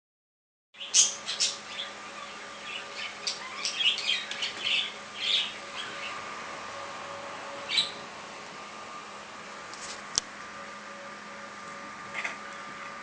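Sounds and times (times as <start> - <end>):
budgerigars chirping and squawking: 0.8 - 6.2, 7.7 - 8.0
faint steady hum: 0.8 - 13.0.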